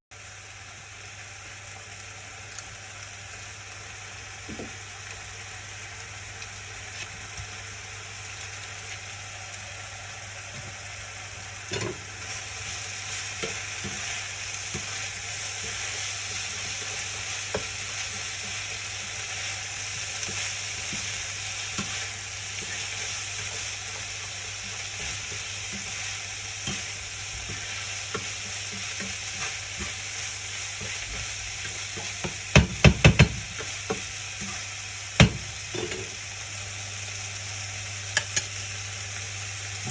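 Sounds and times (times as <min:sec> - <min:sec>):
food sizzling in a frying pan: 0:00.1 - 0:39.9
utensil knocking against pan: 0:32.2 - 0:34.0.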